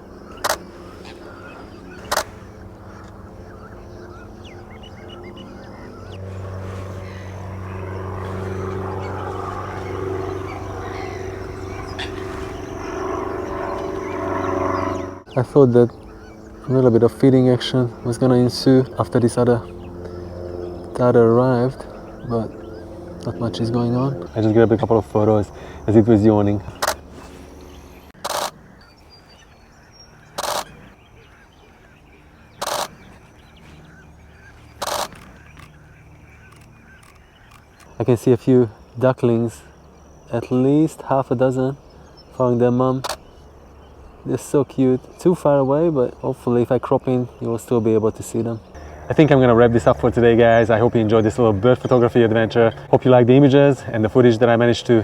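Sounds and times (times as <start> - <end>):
faint bird calls: 0.0 - 55.0
propeller aircraft engine drone: 0.0 - 55.0
camera shutter bursts: 0.4 - 0.7, 2.0 - 2.4, 26.8 - 27.0, 28.2 - 28.6, 30.4 - 30.8, 32.6 - 33.0, 34.8 - 35.8.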